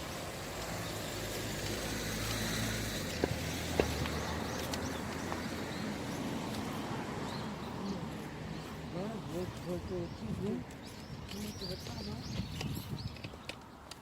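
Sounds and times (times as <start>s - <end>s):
passing vehicle engine hum: 0.0s - 10.7s.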